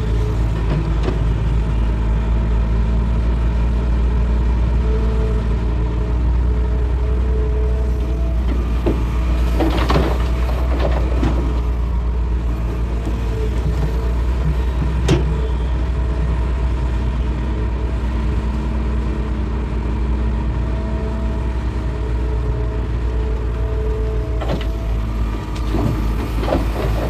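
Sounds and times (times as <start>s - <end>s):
excavator diesel engine running: 0.0s - 27.0s
bucket scraping and knocking on rock: 25.6s - 27.0s.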